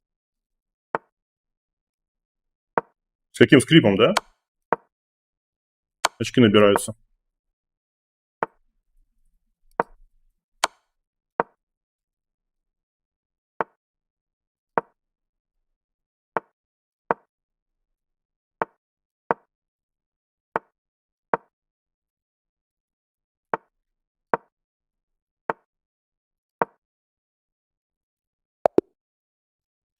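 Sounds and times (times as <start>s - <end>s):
chess piece move clicks: 6.1s - 6.9s.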